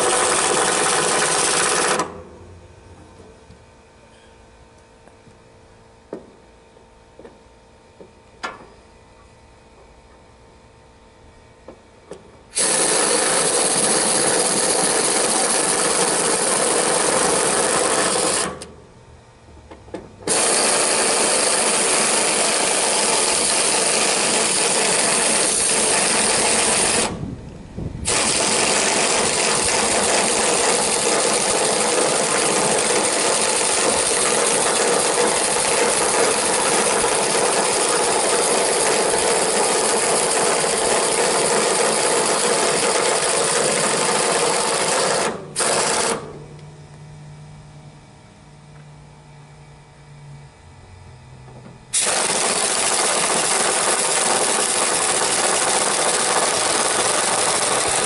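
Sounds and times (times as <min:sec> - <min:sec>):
power tool running: 0:00.0 - 0:02.6, 0:12.5 - 0:18.9, 0:20.2 - 0:46.6, 0:51.4 - 0:58.0.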